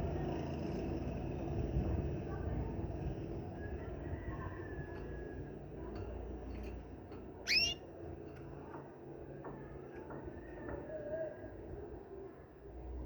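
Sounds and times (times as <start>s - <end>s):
whistled bird call: 7.5s - 7.8s.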